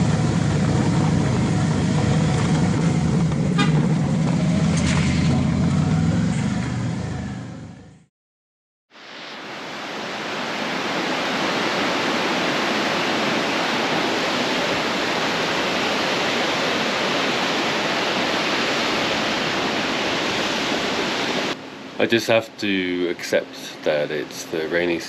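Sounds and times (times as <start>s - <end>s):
rushing water: 8.9s - 25.0s.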